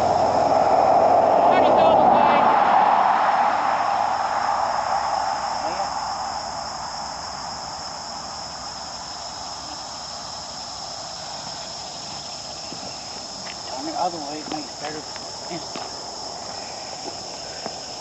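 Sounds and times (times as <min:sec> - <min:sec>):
rushing engine-like noise: 0:00.0 - 0:05.8
insects chirping: 0:00.0 - 0:18.0.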